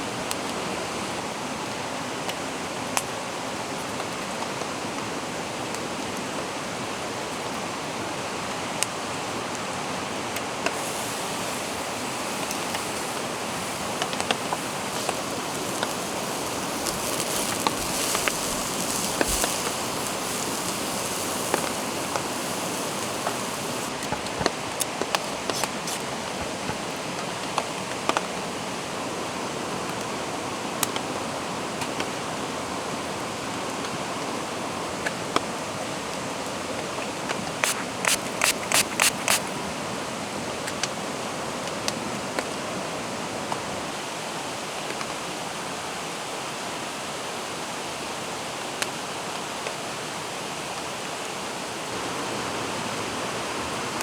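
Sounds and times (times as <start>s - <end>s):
mountain stream rushing: 8.2s - 27.1s, 51.4s - 54.0s
falling rain: 8.8s - 26.9s, 51.6s - 54.0s.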